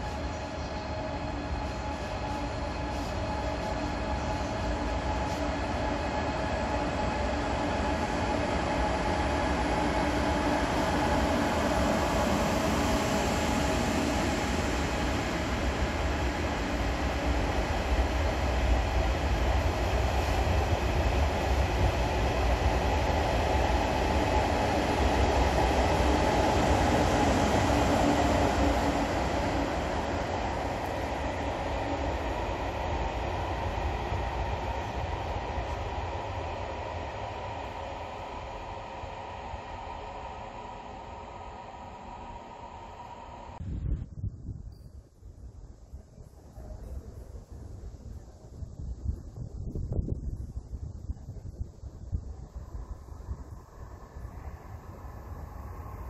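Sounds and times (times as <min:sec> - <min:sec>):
steady tonal hum: 0:00.0 - 0:43.8
high-speed train rumble: 0:00.0 - 0:56.0.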